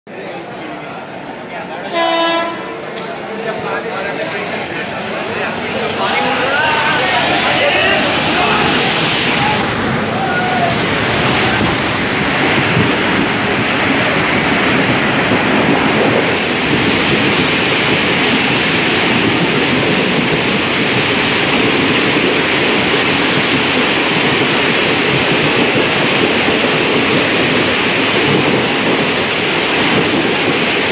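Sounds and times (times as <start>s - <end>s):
rush of water from train: 0.1s - 30.9s.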